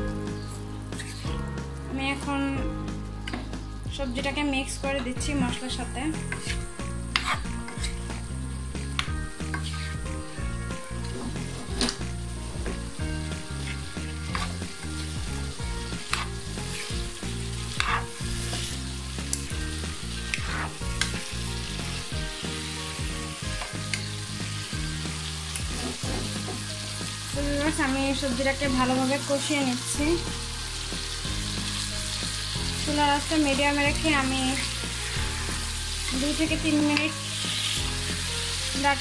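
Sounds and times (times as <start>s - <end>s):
food sizzling in oil: 0.0s - 39.0s
spatula scraping a pan: 0.5s - 1.4s, 6.2s - 8.3s, 9.4s - 10.1s, 13.3s - 15.2s, 15.9s - 18.9s, 20.1s - 21.2s, 24.7s - 26.7s.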